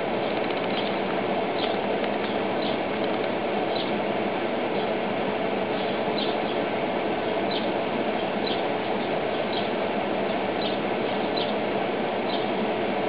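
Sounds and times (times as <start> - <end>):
bird peeping: 1.6 - 2.8, 5.8 - 6.6, 9.4 - 9.7, 10.6 - 11.6, 12.3 - 12.5.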